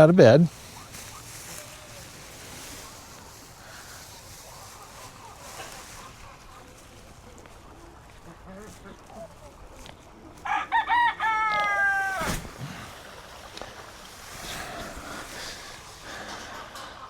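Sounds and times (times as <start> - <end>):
chicken crowing: 10.4 - 12.5.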